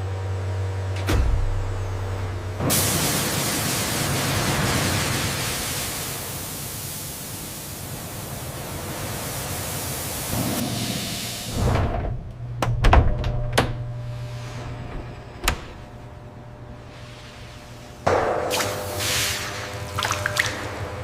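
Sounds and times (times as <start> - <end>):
low hum: 0.2 - 2.7
loud rushing hiss: 2.7 - 11.7.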